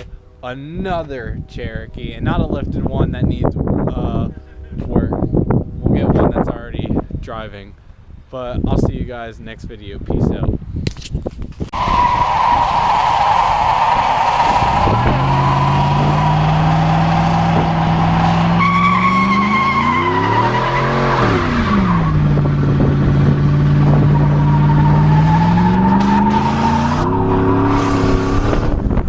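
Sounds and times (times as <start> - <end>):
tires squealing: 11.7 - 28.8
car engine revving: 11.8 - 29.0.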